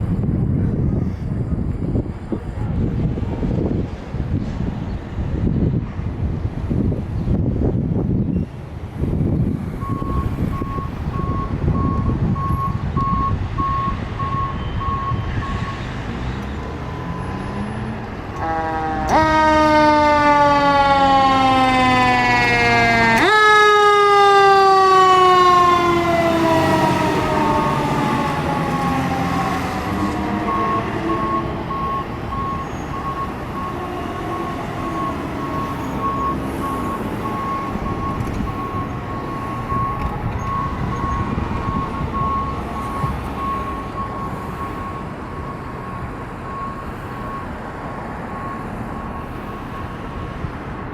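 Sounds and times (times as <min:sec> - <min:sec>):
diesel engine rumble: 0:00.0 - 0:50.9
mechanical siren wailing: 0:16.7 - 0:46.1.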